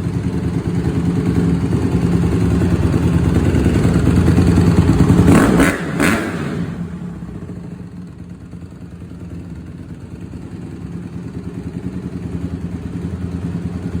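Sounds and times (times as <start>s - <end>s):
dirt bike engine running: 0.0s - 14.0s.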